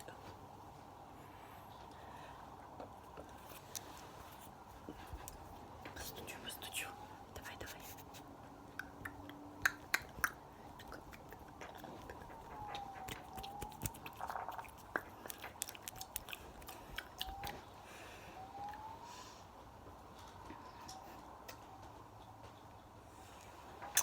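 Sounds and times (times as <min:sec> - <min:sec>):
faint siren wailing: 0:00.0 - 0:24.0
wet mouth clicks and smacks: 0:08.8 - 0:17.6.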